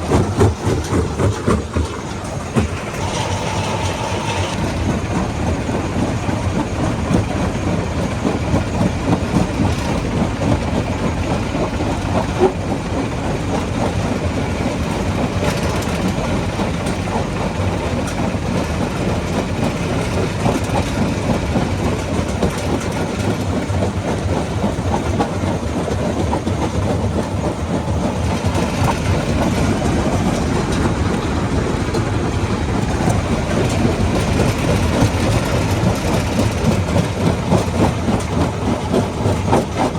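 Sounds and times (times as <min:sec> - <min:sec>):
rock crusher rumble: 0:00.0 - 0:39.9.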